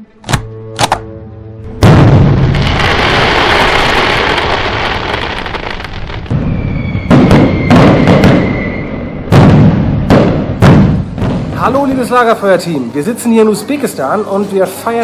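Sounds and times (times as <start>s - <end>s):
fireworks bangs: 1.8s - 12.1s.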